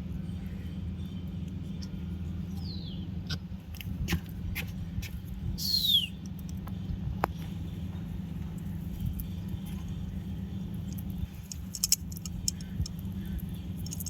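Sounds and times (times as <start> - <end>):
steady low hum: 0.0 - 14.0
cockatiel chirping: 5.6 - 6.2
seeds cracking in beak: 11.1 - 13.0, 13.8 - 14.0.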